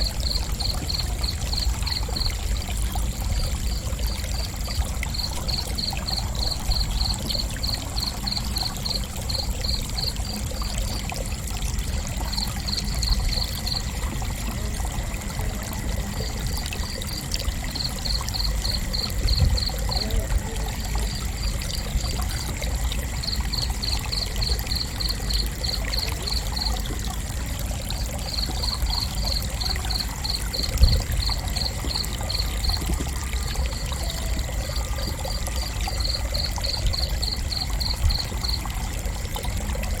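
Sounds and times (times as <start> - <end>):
crickets chirping: 0.0 - 40.0
high-pitched insect trill: 28.0 - 38.9.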